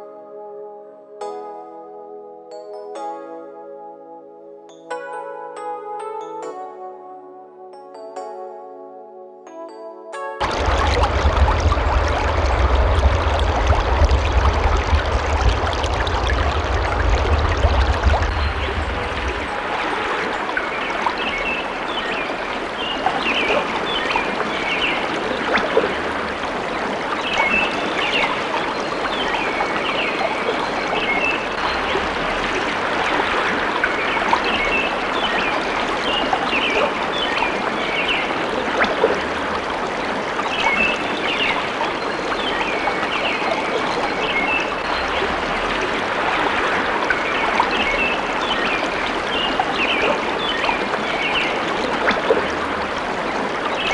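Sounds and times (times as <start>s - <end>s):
stream running water: 10.4s - 53.9s.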